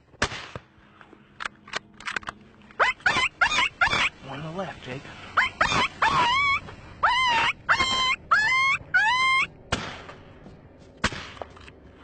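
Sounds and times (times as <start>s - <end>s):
wild canine yelping: 2.8s - 4.2s, 5.3s - 9.5s.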